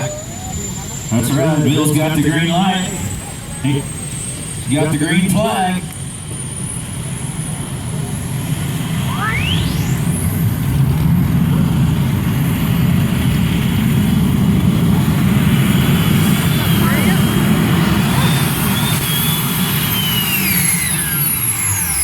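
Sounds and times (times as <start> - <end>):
engine rumbling at full power: 0.0 - 22.0
high whine sweeping upward: 0.0 - 22.0.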